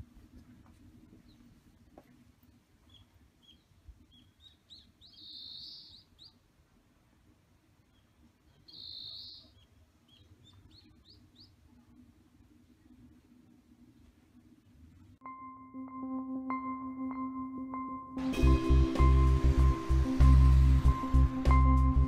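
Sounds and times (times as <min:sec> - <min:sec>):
faint high bird chirps: 0:02.8 - 0:06.4, 0:07.8 - 0:11.8
buzzy bird call: 0:07.9 - 0:11.6.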